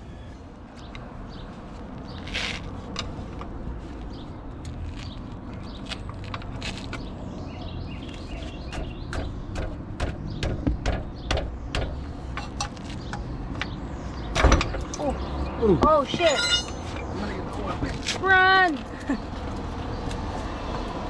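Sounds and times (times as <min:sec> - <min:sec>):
loud metal clank: 0:16.2 - 0:16.9.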